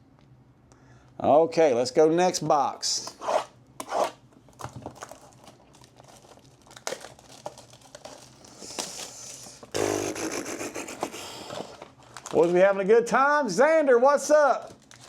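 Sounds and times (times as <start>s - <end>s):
plastic wrapping loud tear: 4.0s - 12.6s, 14.5s - 15.0s
plastic wrapping crinkling: 4.4s - 9.7s, 11.4s - 12.8s, 14.4s - 15.0s.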